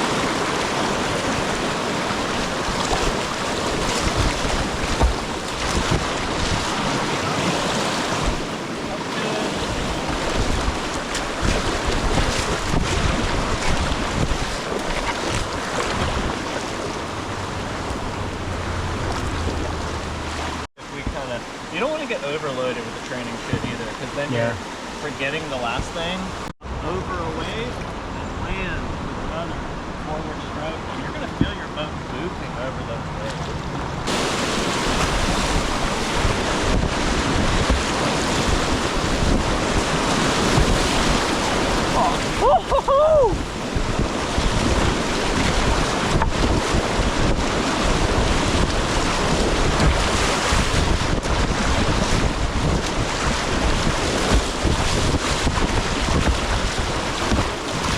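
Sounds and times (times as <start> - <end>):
wind buffeting microphone: 0.0 - 22.0, 33.5 - 57.9
river rapids roaring: 0.0 - 32.1, 32.8 - 57.9.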